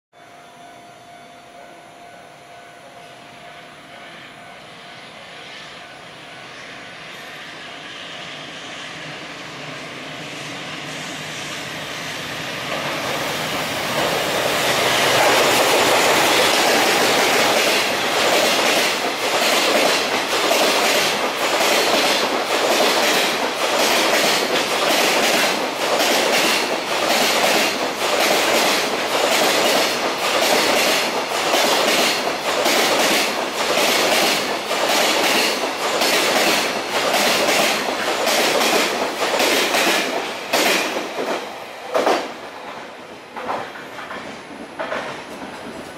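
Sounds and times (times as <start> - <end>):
electric locomotive passing: 0.2 - 45.9
train wheels clacking over rail joints: 12.7 - 45.9.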